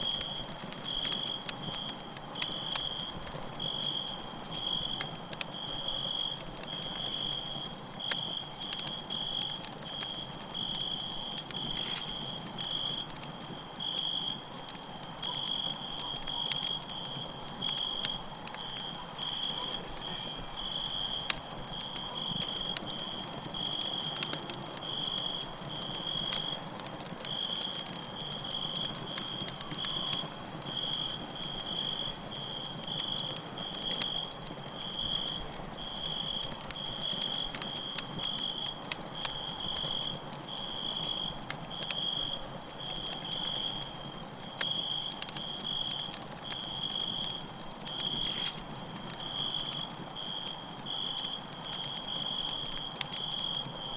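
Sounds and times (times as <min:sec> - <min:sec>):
crackling campfire pops and snaps: 0:00.0 - 0:53.9
crickets chirping: 0:00.0 - 0:53.9.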